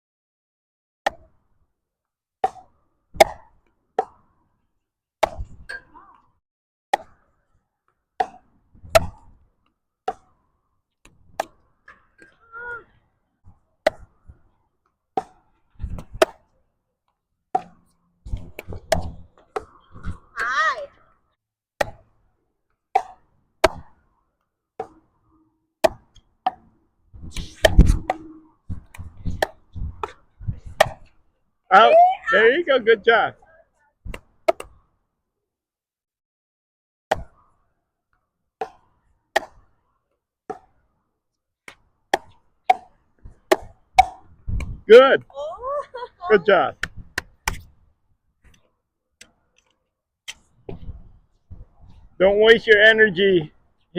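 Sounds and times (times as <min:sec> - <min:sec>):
paddles striking pickleball: 0:08.2 - 0:09.3, 0:15.2 - 0:16.5, 0:22.9 - 0:24.0, 0:34.1 - 0:34.8, 0:38.6 - 0:39.7, 0:41.7 - 0:44.8, 0:46.8 - 0:47.7
wind rumble on microphone: 0:27.1 - 0:28.1, 0:28.7 - 0:30.8, 0:44.4 - 0:44.9.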